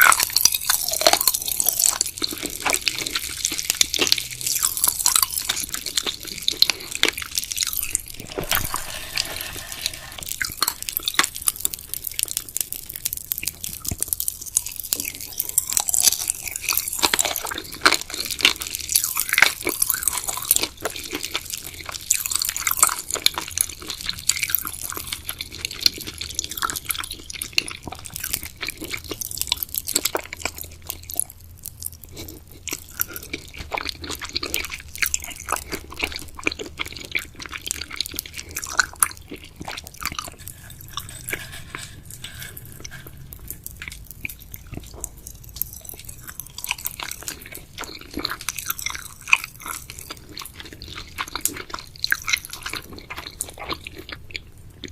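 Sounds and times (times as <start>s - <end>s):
wet chewing of gummy candy: 0.0s - 54.9s.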